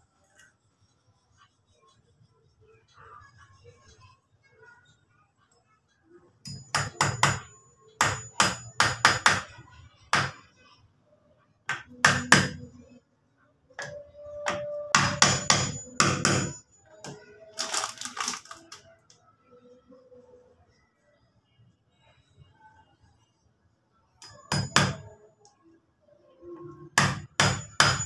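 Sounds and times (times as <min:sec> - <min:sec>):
hammer driving nails into wood: 0:27.0 - 0:28.0.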